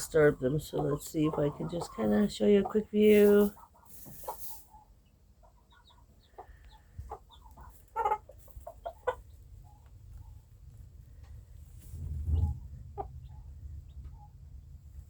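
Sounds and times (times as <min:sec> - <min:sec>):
chickens clucking: 0:00.0 - 0:15.0
low rumble: 0:10.5 - 0:15.0.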